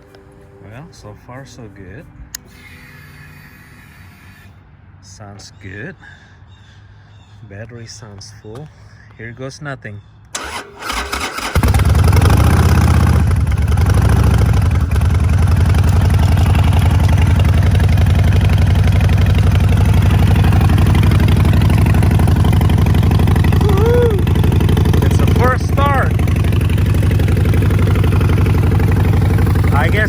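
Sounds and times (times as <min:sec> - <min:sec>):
motorcycle engine starting and idling: 0:10.3 - 0:30.0.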